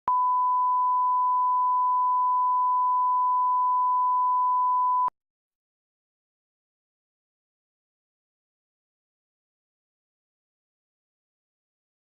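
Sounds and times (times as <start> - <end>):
pure test tone beep: 0.1 - 5.1.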